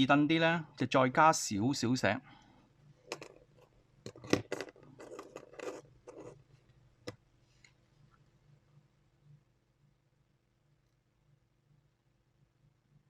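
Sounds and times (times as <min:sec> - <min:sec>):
scratchy scraping: 0:04.1 - 0:06.4.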